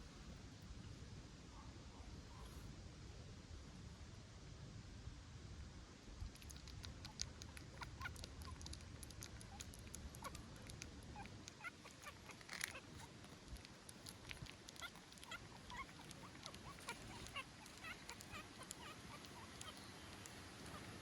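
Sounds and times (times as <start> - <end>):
small clicks: 6.3 - 20.9
newborn puppy squeaking: 6.4 - 21.0.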